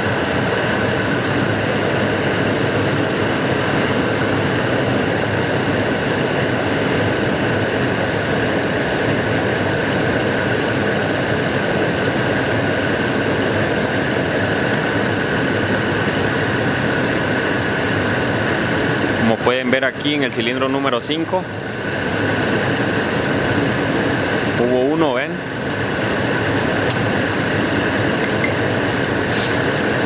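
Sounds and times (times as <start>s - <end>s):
engine idling with misfire: 0.0s - 30.0s.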